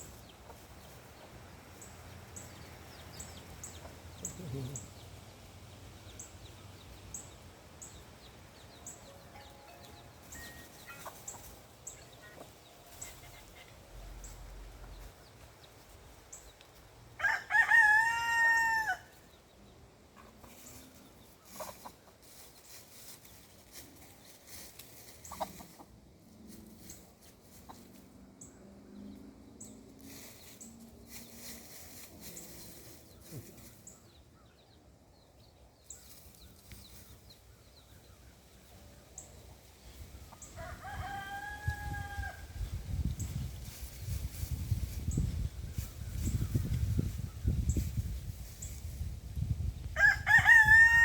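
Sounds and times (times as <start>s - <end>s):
chickens clucking: 0.0s - 16.7s, 20.1s - 28.2s.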